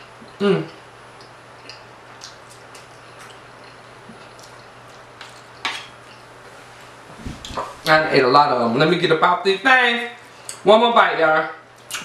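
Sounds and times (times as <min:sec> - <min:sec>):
soft chewing: 0:00.2 - 0:06.4.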